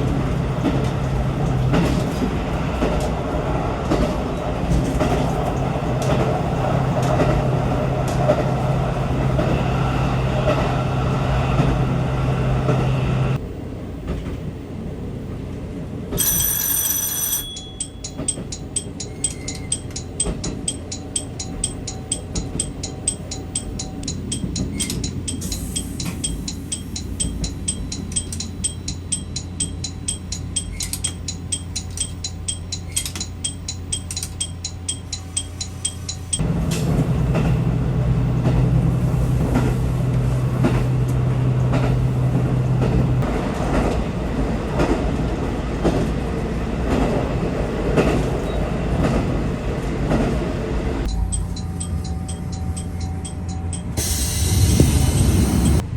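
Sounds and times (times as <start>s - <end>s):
train running with low hum: 0.0s - 55.9s
steady hum with ticking: 17.4s - 36.4s, 51.0s - 55.8s.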